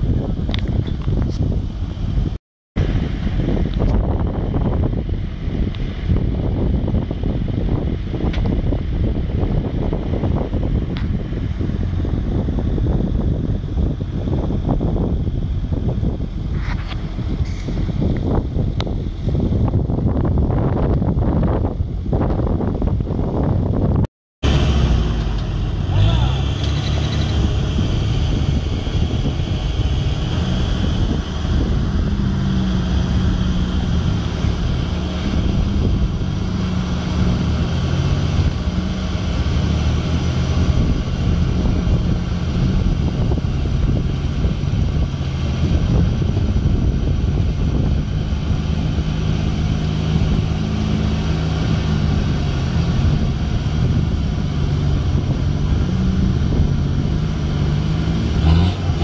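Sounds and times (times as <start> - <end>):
engine revving under load: 24.4 - 59.0.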